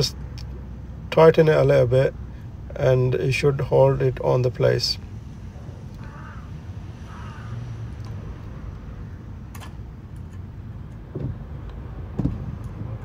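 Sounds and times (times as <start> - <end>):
low outdoor rumble: 0.0 - 13.0
harsh bird calls: 6.0 - 7.7.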